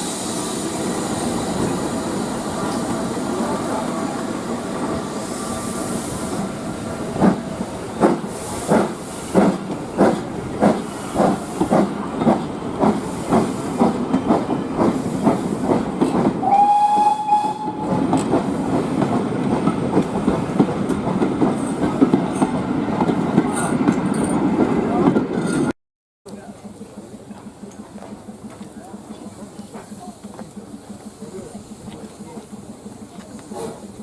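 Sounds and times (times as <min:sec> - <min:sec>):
steam locomotive chuffing: 0:00.0 - 0:25.7, 0:26.3 - 0:34.0
train running noise: 0:00.0 - 0:25.7, 0:26.3 - 0:34.0
steam whistle: 0:16.4 - 0:18.0.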